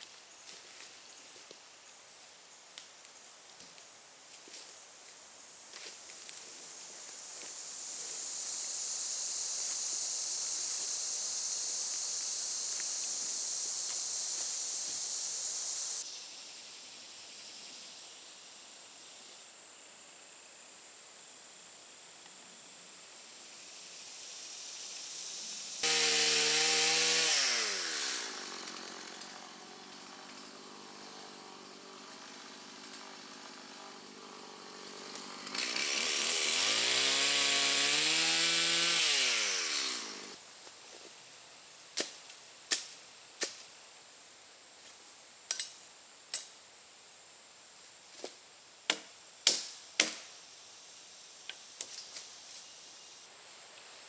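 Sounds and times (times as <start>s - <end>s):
chainsaw revving: 25.8s - 40.4s.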